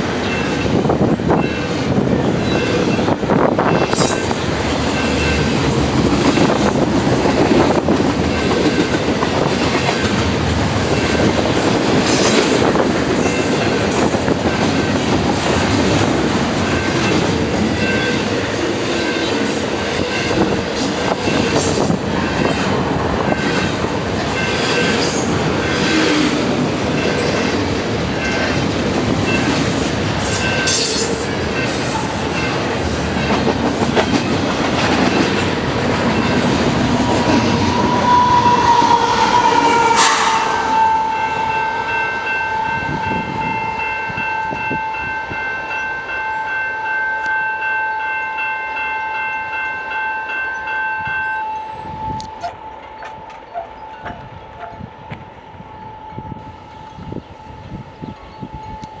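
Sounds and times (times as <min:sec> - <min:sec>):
train wheels rumbling on rail: 0:00.0 - 0:46.6
high wheel squeals: 0:29.2 - 0:33.3, 0:35.1 - 0:45.1.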